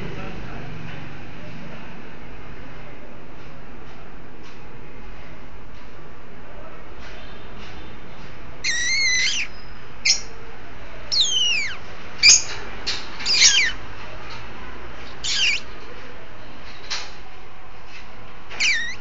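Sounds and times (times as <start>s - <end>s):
cockatiel whistled calls: 8.6s - 10.3s, 11.1s - 12.5s, 13.2s - 13.8s, 15.2s - 15.7s, 18.6s - 19.0s.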